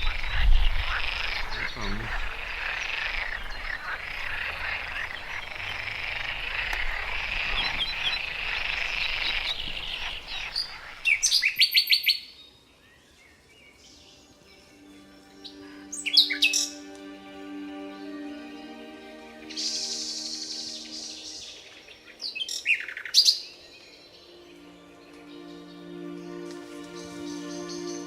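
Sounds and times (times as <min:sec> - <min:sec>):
chorus of frogs calling: 0:00.0 - 0:12.2
bird chirps: 0:00.0 - 0:16.9, 0:19.4 - 0:28.0.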